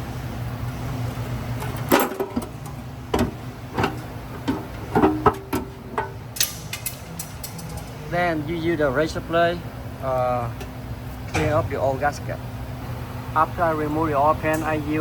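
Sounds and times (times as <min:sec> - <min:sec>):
steady low hum: 0:00.0 - 0:15.0
metallic clinks and knocks: 0:03.8 - 0:08.0.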